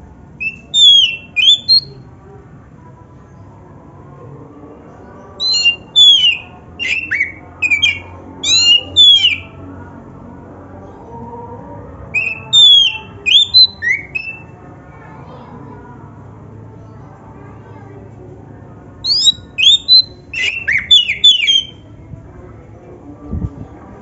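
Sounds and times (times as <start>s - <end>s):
bird singing sliding whistles: 0.4s - 1.9s, 5.4s - 9.5s, 12.2s - 14.5s, 19.0s - 21.8s.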